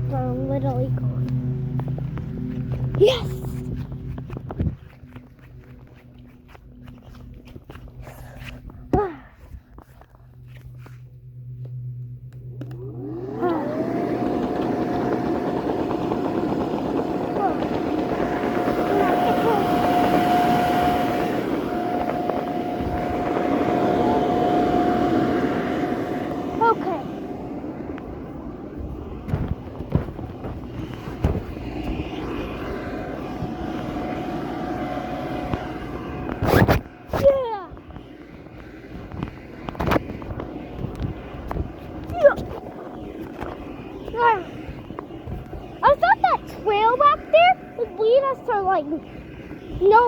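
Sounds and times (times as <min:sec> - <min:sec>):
steady engine drone: 0:00.0 - 0:50.0
motor spinning up: 0:12.3 - 0:50.0.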